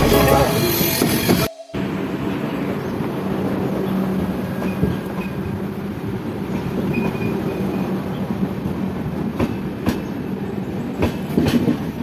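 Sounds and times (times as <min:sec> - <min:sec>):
train wheels clacking on rails: 0:06.4 - 0:12.0.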